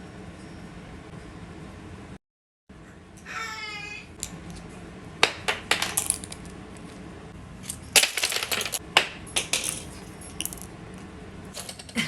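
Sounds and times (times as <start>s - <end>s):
small hard objects clicking and clattering: 9.4s - 10.7s.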